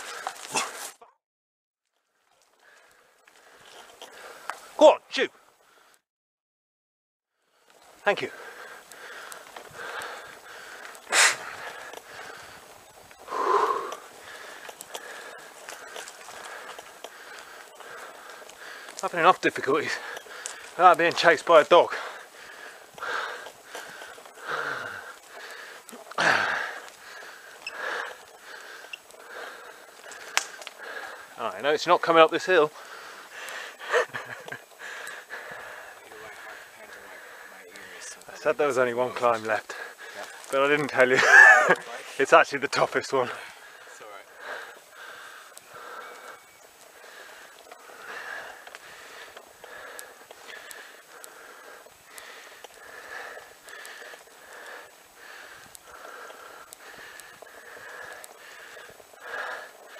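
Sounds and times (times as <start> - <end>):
person breathing hard: 8.3 - 19.0, 19.8 - 20.8, 21.8 - 31.4, 32.7 - 38.2, 43.3 - 59.9.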